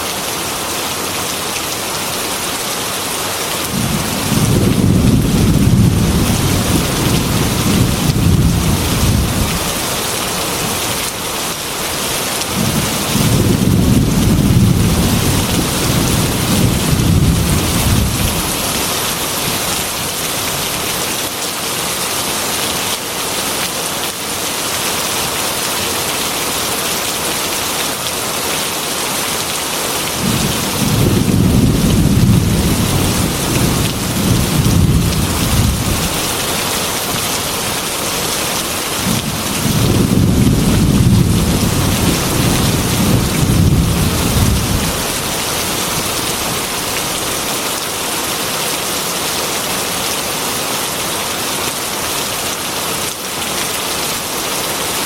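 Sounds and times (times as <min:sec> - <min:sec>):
heavy rain on glass window: 0:03.4 - 0:48.8
low rolls of thunder: 0:03.7 - 0:09.7, 0:12.6 - 0:18.6, 0:30.2 - 0:36.2, 0:39.0 - 0:45.0.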